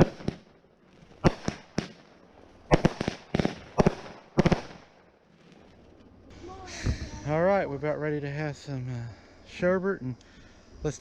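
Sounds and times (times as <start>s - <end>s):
fireworks bangs and pops: 0.0s - 6.2s.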